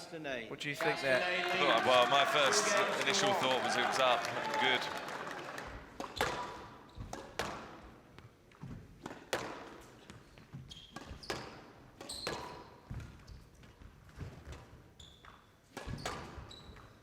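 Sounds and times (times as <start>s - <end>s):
squash ball hitting rackets and walls: 6.0s - 8.0s, 8.6s - 14.8s, 15.7s - 16.9s
sneakers squeaking on court floor: 10.5s - 13.2s, 14.2s - 17.0s.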